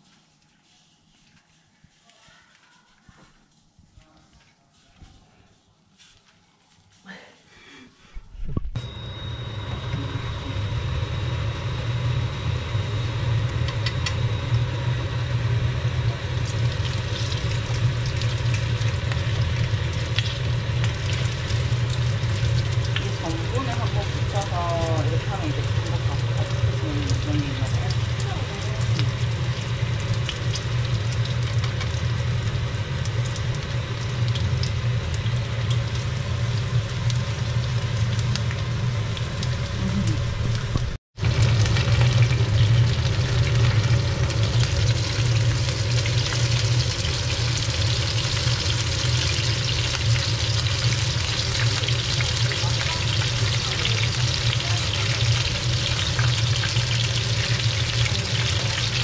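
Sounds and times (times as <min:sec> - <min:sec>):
low hum: 0:08.2 - 0:58.8
prawns sizzling in hot oil: 0:15.3 - 0:59.0.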